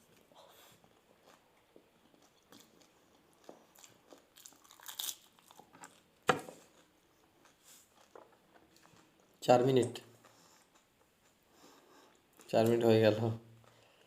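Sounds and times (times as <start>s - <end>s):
crisp snacks crunching: 2.1s - 6.0s.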